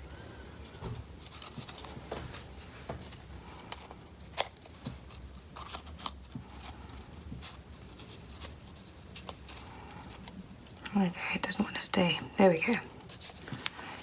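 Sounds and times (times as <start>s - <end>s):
paper rustling: 0.6s - 10.8s, 12.6s - 14.0s
paper crackle: 1.2s - 10.8s, 12.6s - 14.0s.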